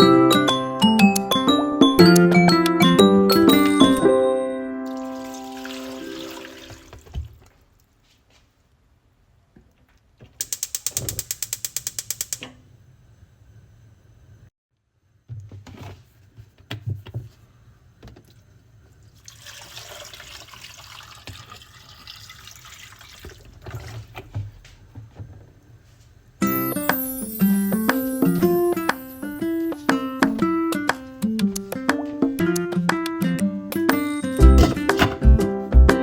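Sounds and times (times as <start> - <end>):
running water: 4.9 - 7.4, 19.2 - 24.2
rapid clicking: 10.4 - 12.4.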